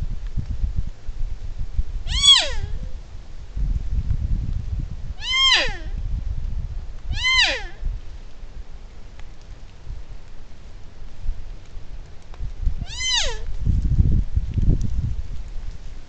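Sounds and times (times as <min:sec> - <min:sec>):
deer bleating: 0:02.1 - 0:02.7, 0:05.2 - 0:06.0, 0:07.1 - 0:07.8, 0:12.8 - 0:13.5.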